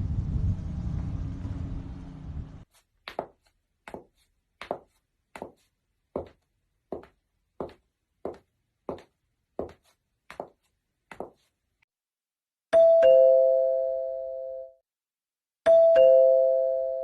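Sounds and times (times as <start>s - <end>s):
two-tone doorbell chime: 12.8s - 14.8s, 15.7s - 17.0s.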